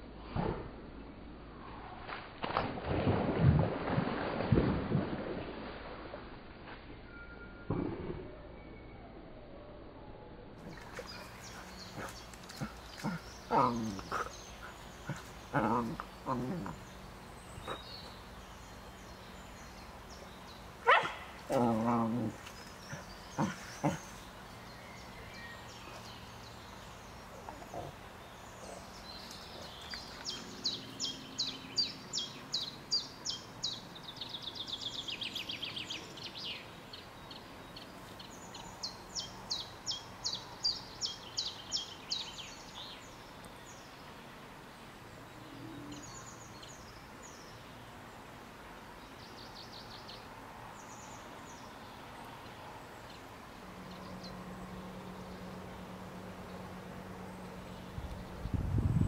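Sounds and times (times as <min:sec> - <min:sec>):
songbird singing trills: 0:08.3 - 0:44.1.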